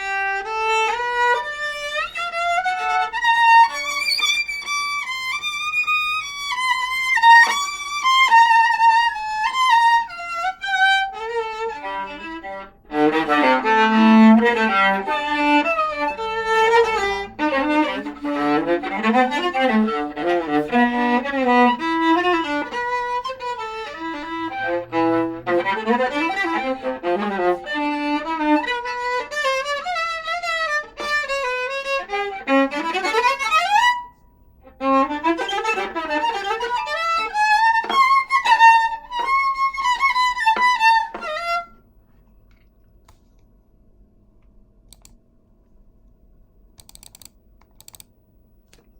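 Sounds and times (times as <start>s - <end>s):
bowed viola melody: 0.0s - 41.9s.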